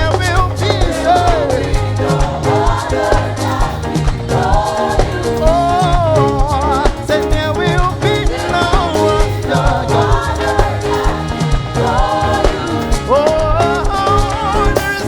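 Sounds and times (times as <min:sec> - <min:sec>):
drums: 0:00.0 - 0:15.0
upbeat worship band music: 0:00.0 - 0:15.0
person singing: 0:04.6 - 0:15.0.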